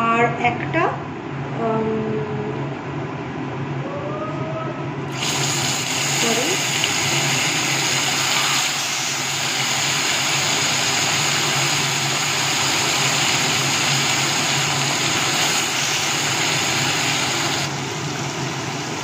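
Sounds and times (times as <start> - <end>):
low steady hum: 0.0 - 8.6
paste sizzling in hot oil: 5.1 - 19.0.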